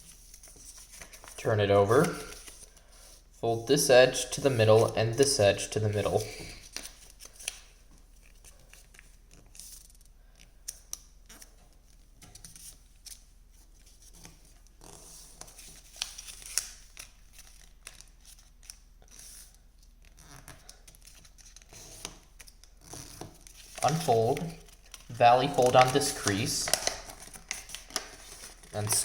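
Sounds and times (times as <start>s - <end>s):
paper rustling: 0.0s - 3.4s, 4.1s - 29.0s
paper creasing: 12.4s - 29.0s.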